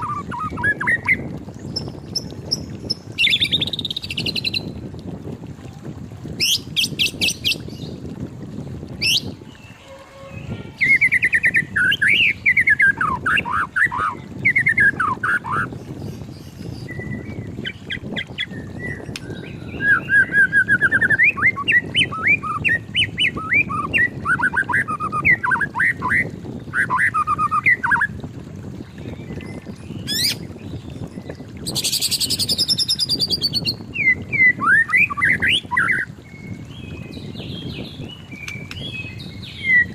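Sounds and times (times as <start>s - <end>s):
bird singing whistled phrases: 9.0s - 15.7s, 18.4s - 28.1s, 31.7s - 36.5s.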